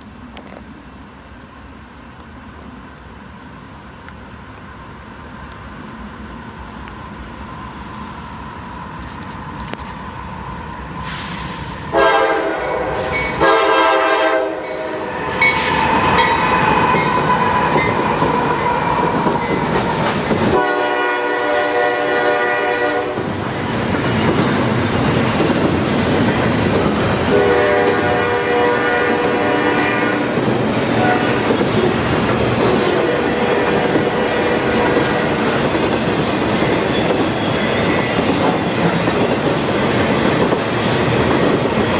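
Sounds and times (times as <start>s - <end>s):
train rumble: 0.0s - 41.9s
train air horn blasts: 11.1s - 17.9s, 20.4s - 23.3s, 27.2s - 31.6s, 32.9s - 35.5s
wheels clacking over rail joints: 15.3s - 20.7s, 23.2s - 28.4s, 29.0s - 41.9s.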